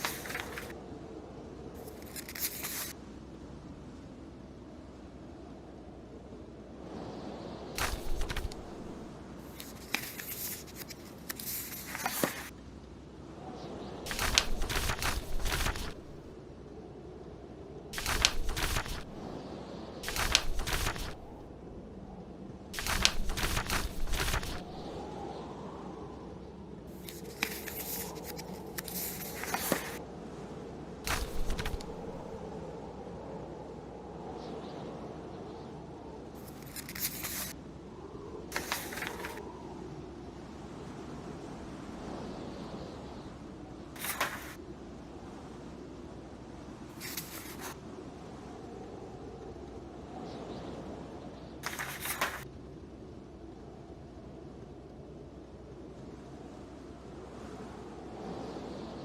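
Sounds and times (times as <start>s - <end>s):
book pages turning: 0.0s - 0.7s, 1.8s - 2.9s, 7.8s - 12.5s, 14.1s - 16.3s, 18.0s - 19.4s, 20.0s - 21.4s, 22.8s - 25.0s, 26.9s - 30.0s, 31.1s - 32.4s, 36.4s - 37.5s, 38.6s - 39.4s, 44.0s - 44.6s, 47.0s - 47.8s, 51.6s - 52.4s
wind rumble: 0.0s - 40.9s.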